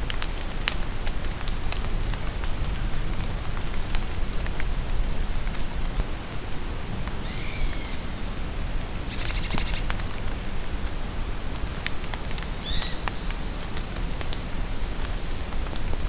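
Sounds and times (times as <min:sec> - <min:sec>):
steady rain in a forest: 0:00.0 - 0:16.0
birds calling: 0:07.2 - 0:08.3, 0:09.1 - 0:10.3, 0:12.5 - 0:13.6.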